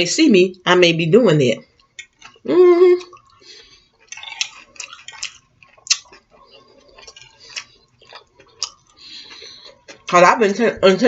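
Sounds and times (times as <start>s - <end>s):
wet mouth clicks while chewing: 3.0s - 10.1s.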